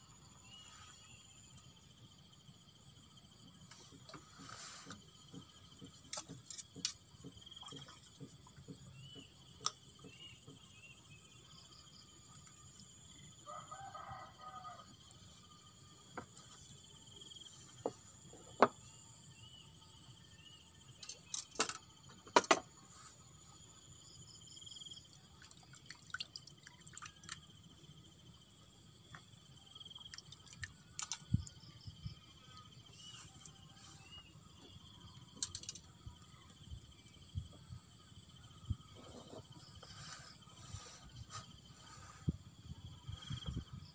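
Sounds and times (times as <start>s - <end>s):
crickets chirping: 0.0s - 43.9s
rooster crowing: 13.5s - 14.9s.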